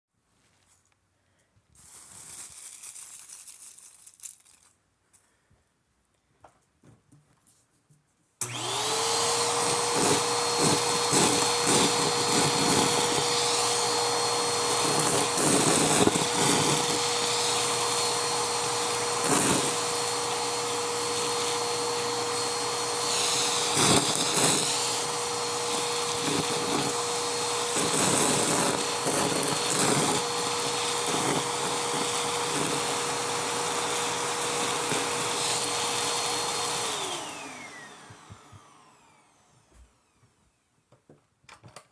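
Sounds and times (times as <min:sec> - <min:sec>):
foam pieces clicking and rattling: 0:01.8 - 0:05.3
vacuum cleaner whine: 0:08.4 - 0:40.7.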